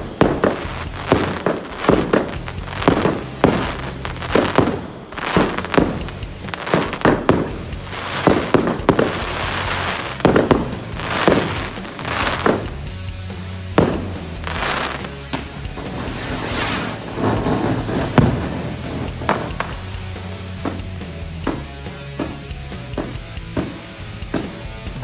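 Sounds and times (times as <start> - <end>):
fireworks sharp bangs: 0.0 - 13.1, 13.7 - 21.6
backing music: 0.0 - 25.0.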